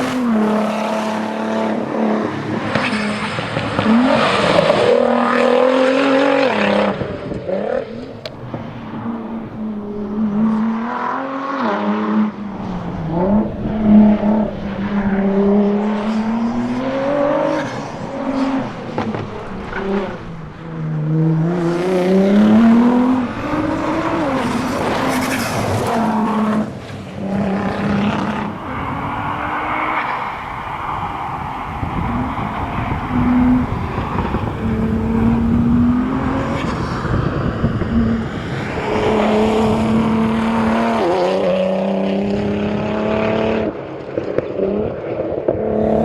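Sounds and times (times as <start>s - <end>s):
car engine revving hard: 9.0s - 43.8s, 44.6s - 46.0s.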